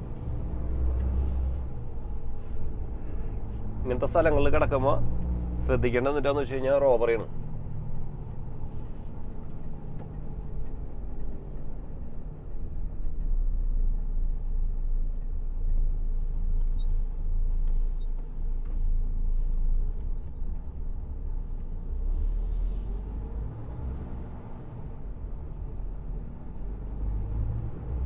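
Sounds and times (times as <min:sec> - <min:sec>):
diesel truck engine rumble: 0:00.0 - 0:28.0.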